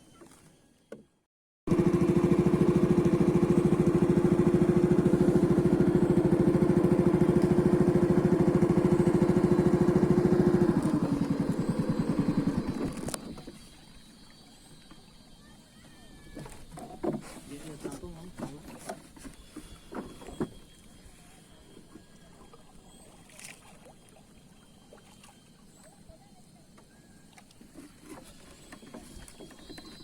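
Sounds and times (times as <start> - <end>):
motorboat engine puttering: 1.7 - 14.1, 16.2 - 21.0.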